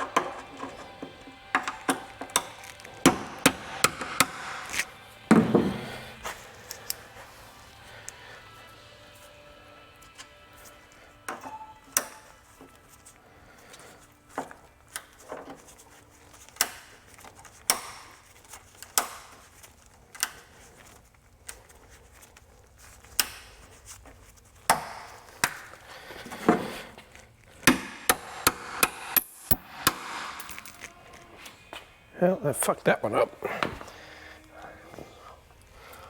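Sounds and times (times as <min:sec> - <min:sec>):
hand tools tapping on metal: 0:00.0 - 0:07.3, 0:10.1 - 0:13.0, 0:13.7 - 0:19.5, 0:24.6 - 0:31.8.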